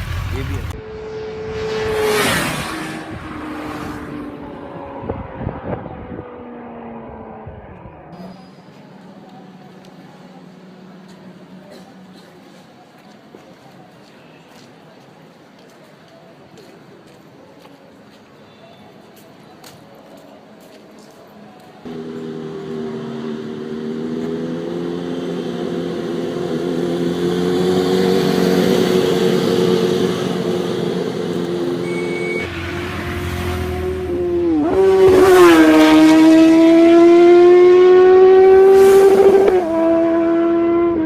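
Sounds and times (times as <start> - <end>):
motorcycle engine at high revs: 21.9 - 41.0.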